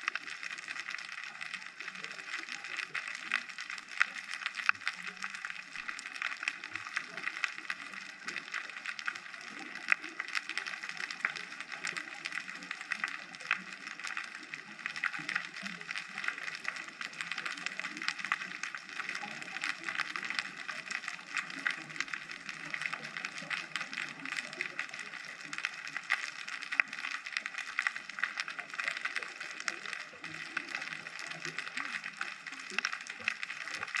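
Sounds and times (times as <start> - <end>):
underwater crackle of clicks: 0.0 - 34.0.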